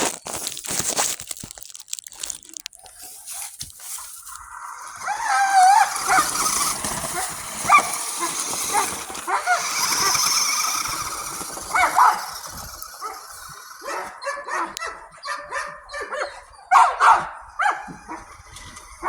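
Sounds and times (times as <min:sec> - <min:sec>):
dog barking and yipping: 0:04.8 - 0:18.4.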